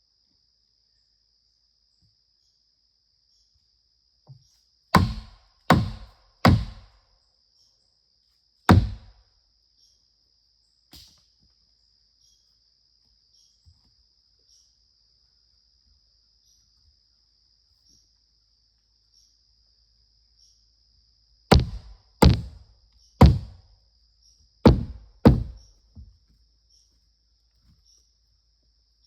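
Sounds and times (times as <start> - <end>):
crickets chirping: 0.0 - 29.0
heavy blows striking wood: 5.0 - 6.9, 8.7 - 9.1, 21.5 - 22.6, 23.2 - 23.6, 24.7 - 25.7.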